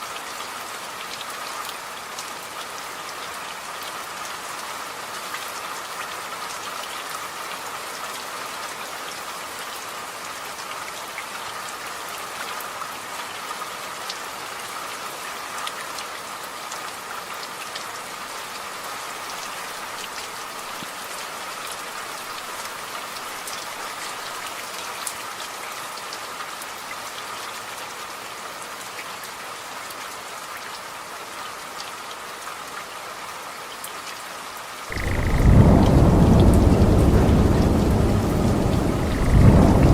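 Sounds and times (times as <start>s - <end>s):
rain hiss: 34.7s - 39.9s
raindrops ticking: 34.9s - 39.9s.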